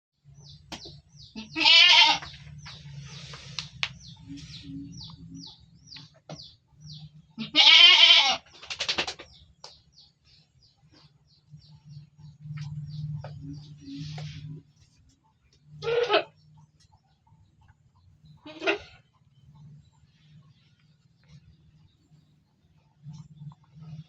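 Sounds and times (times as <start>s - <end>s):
goat bleating: 1.4s - 2.3s, 7.4s - 8.4s, 15.8s - 16.4s, 18.4s - 19.0s.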